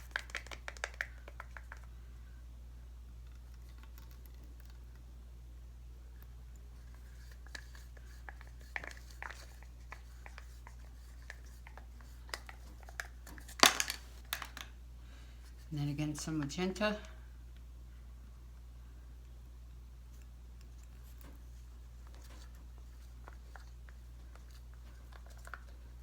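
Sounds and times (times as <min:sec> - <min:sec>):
plastic cups clicking and tapping: 0:00.0 - 0:01.9, 0:07.3 - 0:14.7
steady low hum: 0:01.0 - 0:26.0.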